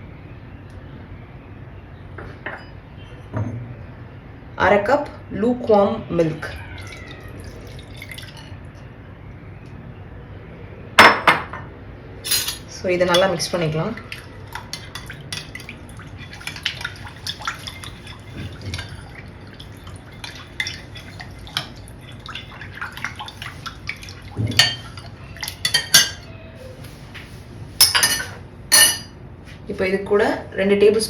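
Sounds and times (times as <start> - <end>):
utensil clinking and scraping bowl: 12.3 - 26.3.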